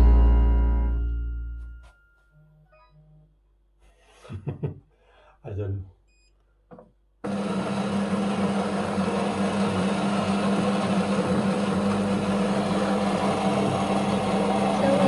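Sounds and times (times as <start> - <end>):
coffee machine humming: 7.2 - 15.0.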